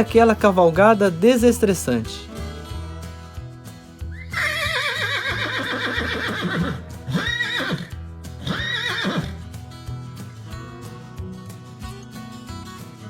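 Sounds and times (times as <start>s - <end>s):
background music: 0.0s - 13.0s
horse neighing: 4.2s - 9.4s.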